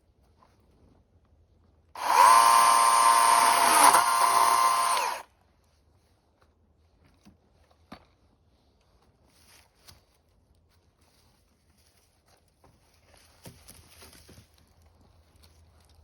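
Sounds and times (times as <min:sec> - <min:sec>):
power tool motor spinning: 0:02.0 - 0:05.2.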